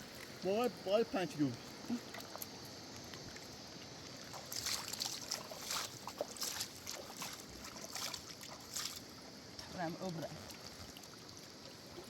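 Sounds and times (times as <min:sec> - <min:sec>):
water lapping around a boat: 0:01.7 - 0:12.0
short splashes: 0:04.3 - 0:09.1.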